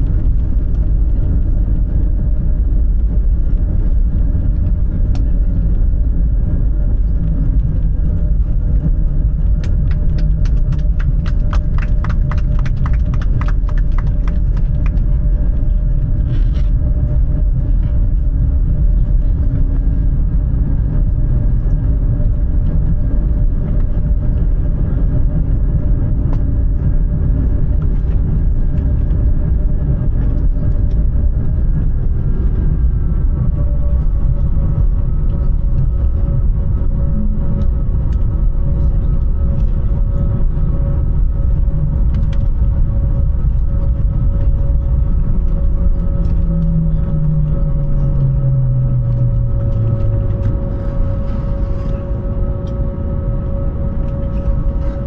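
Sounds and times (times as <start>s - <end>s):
airliner engine and airflow rumble: 0.0s - 55.0s.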